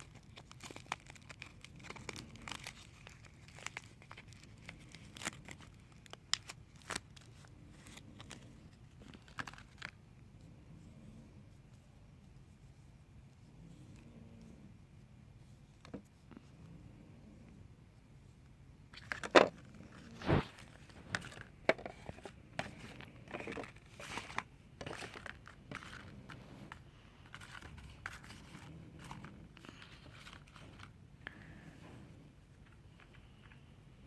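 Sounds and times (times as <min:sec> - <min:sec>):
wrapper tearing and crinkling: 0:00.0 - 0:10.0.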